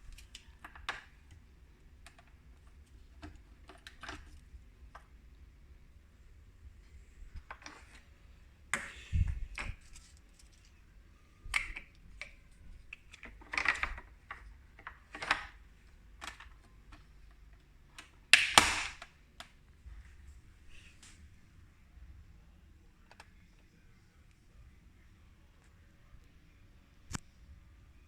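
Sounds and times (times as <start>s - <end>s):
objects being handled: 0.0s - 5.2s, 6.8s - 19.1s.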